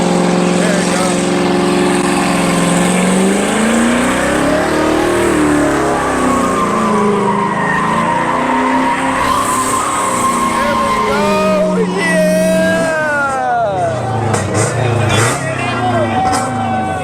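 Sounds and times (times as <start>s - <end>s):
car engine at high revs: 0.0s - 17.0s
tire squeal: 0.6s - 17.0s.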